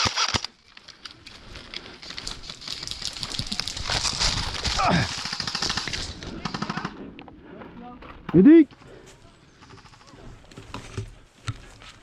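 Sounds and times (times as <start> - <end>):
airsoft rifle burst: 0.0 - 0.5
crackling clatter of small clicks: 0.1 - 6.2.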